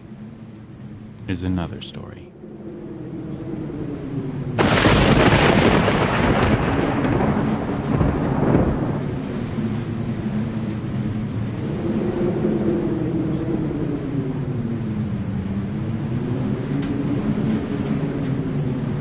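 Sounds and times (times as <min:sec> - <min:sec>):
steady low hum: 0:00.0 - 0:17.9
thunder crack and rumble: 0:02.6 - 0:19.0.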